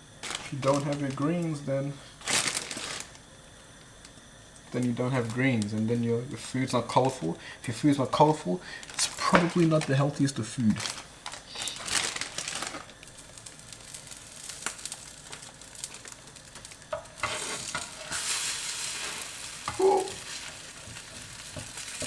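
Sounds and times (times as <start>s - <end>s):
omelette sizzling in a frying pan: 8.2s - 22.0s.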